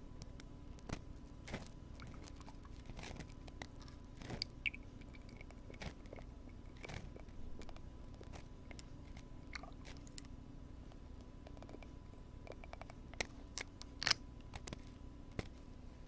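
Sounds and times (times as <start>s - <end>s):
low background hum: 0.0s - 16.0s
scratchy crackles in ear: 0.2s - 10.3s.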